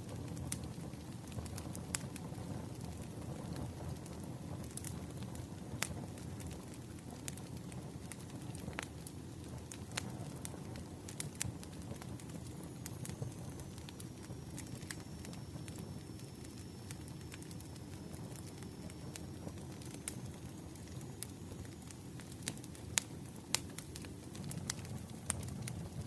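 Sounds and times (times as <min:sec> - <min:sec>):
campfire flames rumbling: 0:00.0 - 0:26.0
wood crackling and popping: 0:00.0 - 0:26.0
faint high whistle: 0:13.0 - 0:21.8.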